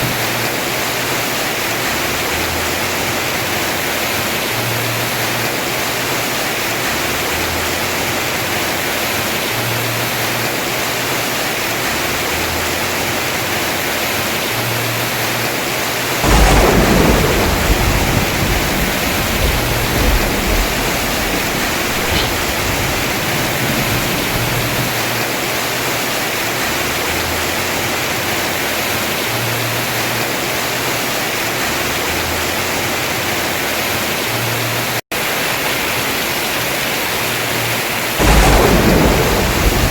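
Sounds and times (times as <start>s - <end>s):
heavy rain on a roof: 0.0s - 39.9s
thunderclap rumbling: 16.2s - 25.3s, 38.2s - 39.9s.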